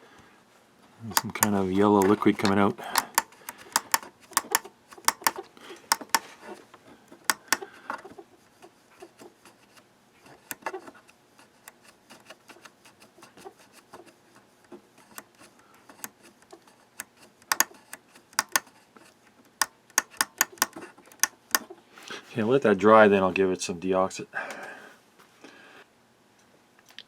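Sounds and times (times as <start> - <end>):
small tools clicking on workbench: 1.1 - 6.3, 7.1 - 8.0, 10.3 - 11.0, 14.0 - 18.7, 19.5 - 21.7.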